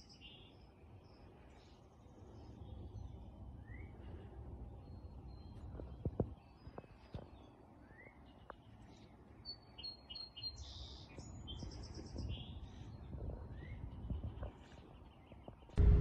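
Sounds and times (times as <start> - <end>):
songbirds chirping: 0.0 - 16.0
faint low rumble: 15.7 - 16.0.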